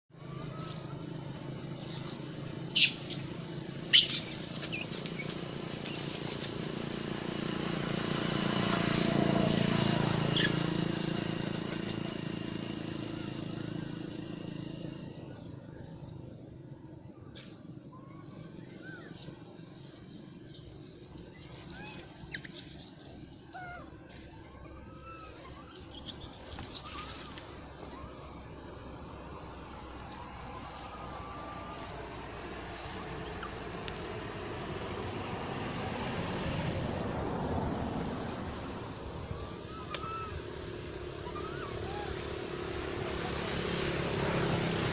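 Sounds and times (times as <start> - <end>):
outdoor background noise: 0.0 - 44.9
steady low hum: 0.1 - 44.9
high chirping animal calls: 1.8 - 3.2, 3.8 - 6.0, 21.2 - 28.5
monkeys shrieking: 1.8 - 3.2, 3.8 - 6.2, 10.2 - 10.8, 21.4 - 28.4, 39.4 - 42.5
faint squeaks: 21.3 - 28.4.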